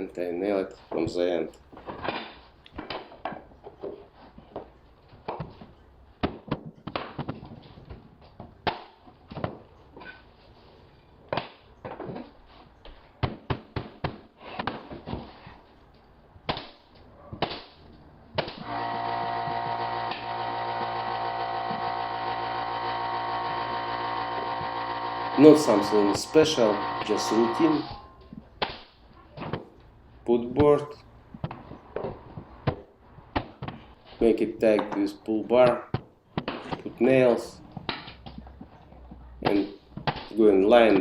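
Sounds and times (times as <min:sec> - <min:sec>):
pneumatic nail gun shots: 0:18.4 - 0:28.2
air compressor humming: 0:18.6 - 0:28.2.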